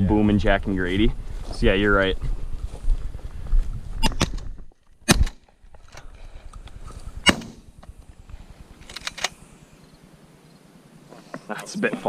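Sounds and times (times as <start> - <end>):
shotgun shots: 7.2 - 7.7.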